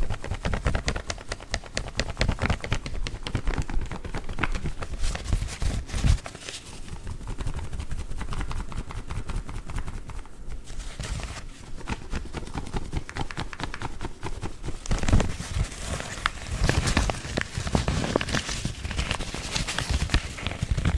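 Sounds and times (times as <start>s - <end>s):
coffee filter bags rustling: 14.7s - 20.9s.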